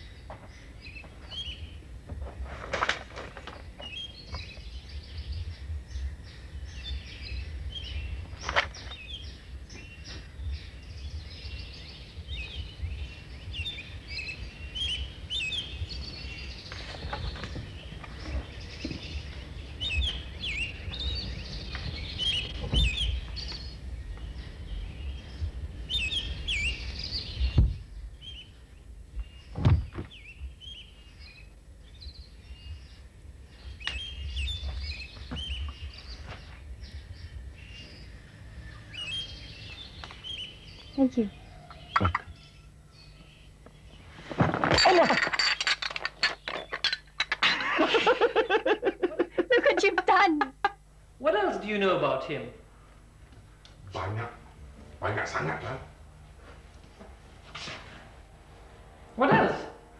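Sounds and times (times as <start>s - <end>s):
birds chirping and calling: 0.0s - 58.1s
low background rumble: 3.3s - 44.2s.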